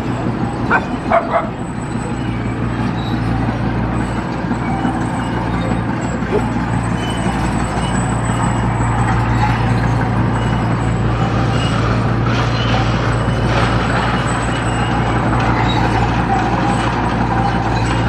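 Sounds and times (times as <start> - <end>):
diesel construction machinery running: 0.0 - 18.0.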